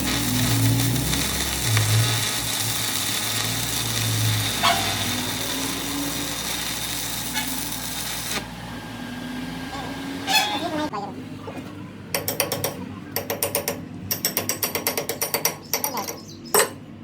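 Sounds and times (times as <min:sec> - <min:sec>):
welding arc sizzling and crackling: 0:00.0 - 0:10.9.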